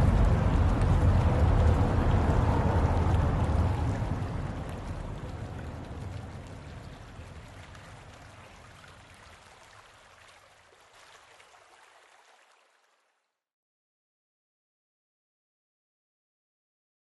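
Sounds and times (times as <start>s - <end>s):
rushing water: 0.0s - 13.2s.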